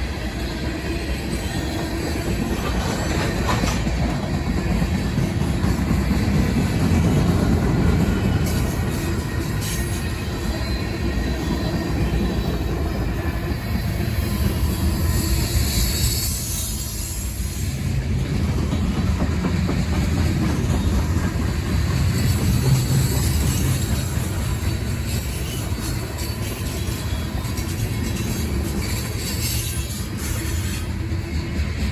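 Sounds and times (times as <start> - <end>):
freight train rumbling on rails: 0.0 - 31.9
high-pitched wheel squeal: 8.0 - 17.8, 22.0 - 31.0.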